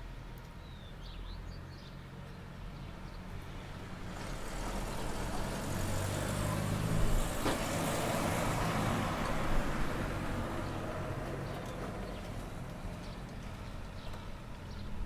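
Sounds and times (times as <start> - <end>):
vehicle driving past: 3.7 - 12.5.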